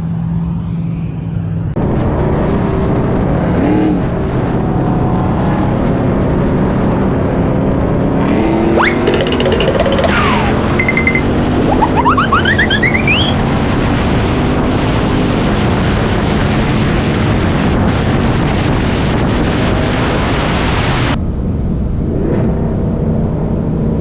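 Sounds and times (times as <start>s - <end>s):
rising whistles: 8.8s - 13.4s.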